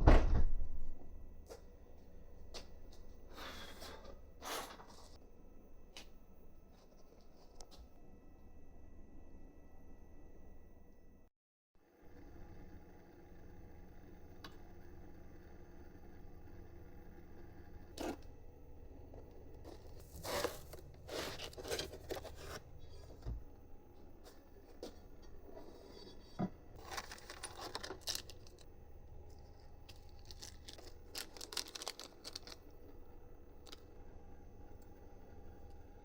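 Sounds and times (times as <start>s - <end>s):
plastic film tearing and crinkling: 19.8s - 22.6s, 26.8s - 28.6s, 29.9s - 32.6s.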